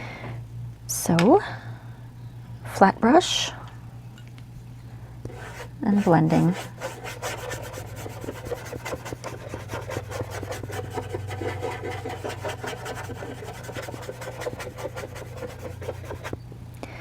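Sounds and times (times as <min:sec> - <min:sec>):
brush rubbing on charcoal paper: 0:05.3 - 0:16.3.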